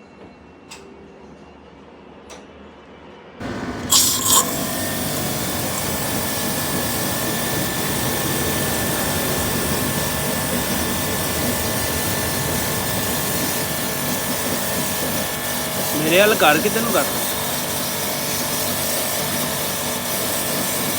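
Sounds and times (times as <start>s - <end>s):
faint steady whine: 3.4s - 17.2s
machine running with loud hiss: 3.4s - 20.9s.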